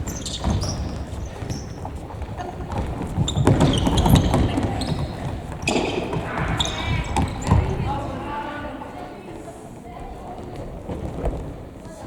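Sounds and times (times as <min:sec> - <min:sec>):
footfalls on gym floor: 0:00.0 - 0:08.2
sneaker squeaks: 0:00.0 - 0:08.5.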